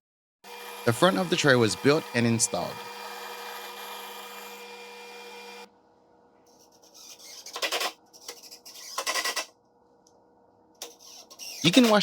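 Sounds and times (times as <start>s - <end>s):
power tool motor running: 0.4s - 5.7s.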